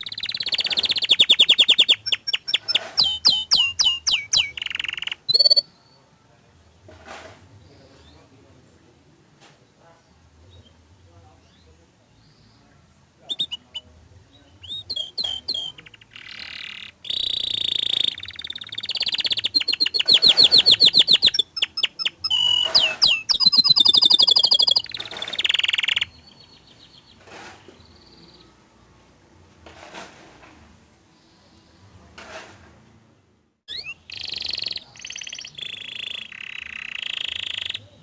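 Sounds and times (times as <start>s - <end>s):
canary singing trills: 0.0s - 6.0s, 13.2s - 28.6s, 33.7s - 38.0s.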